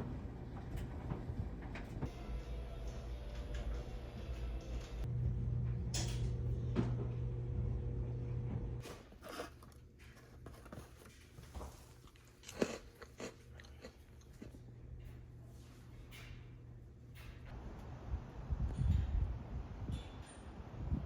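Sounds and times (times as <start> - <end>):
steady low hum: 0.0 - 8.8, 13.3 - 21.0.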